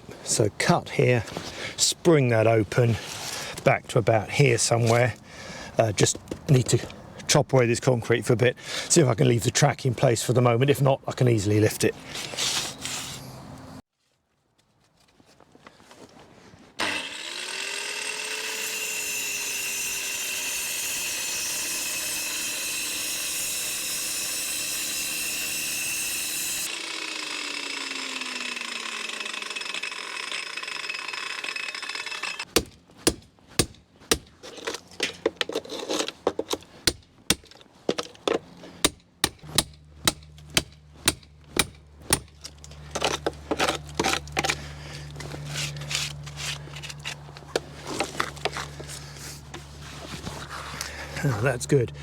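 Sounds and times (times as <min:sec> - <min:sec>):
angle grinder cutting concrete: 0:16.8 - 0:32.5.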